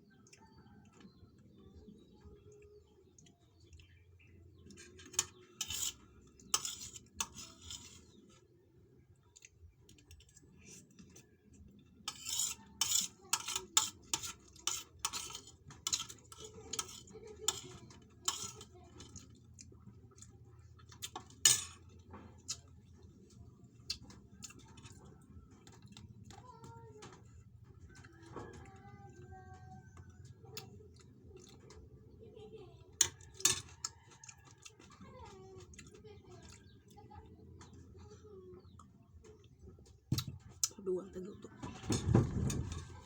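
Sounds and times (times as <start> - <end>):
cutlery clinking on a plate: 4.7 - 8.1, 12.1 - 19.2, 20.9 - 22.6, 33.0 - 34.5.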